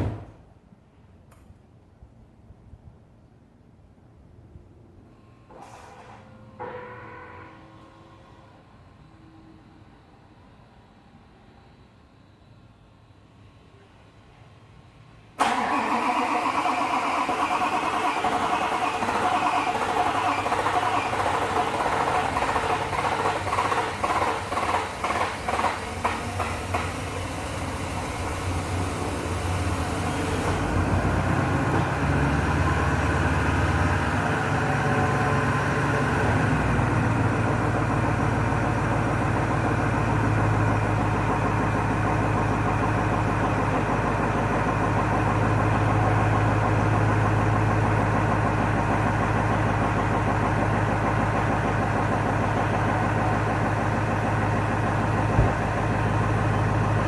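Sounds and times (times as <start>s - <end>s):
starter motor cranking: 15.4s - 27.5s
diesel engine idling: 15.4s - 57.0s.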